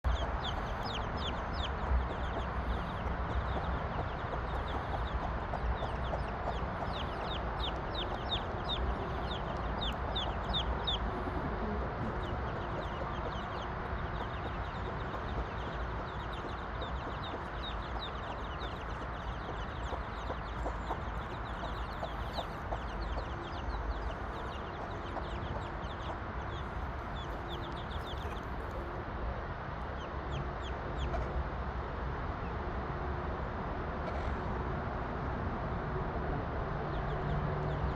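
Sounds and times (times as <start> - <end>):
chickens clucking: 0.1 - 29.0.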